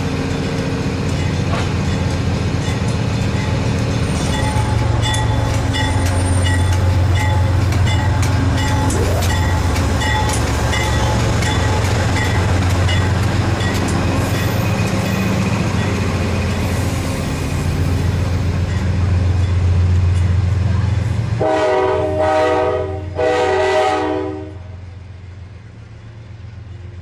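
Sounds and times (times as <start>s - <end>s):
train clicks: 0.0s - 21.4s
locomotive engine drone: 0.0s - 27.0s
bell ringing: 4.2s - 13.8s.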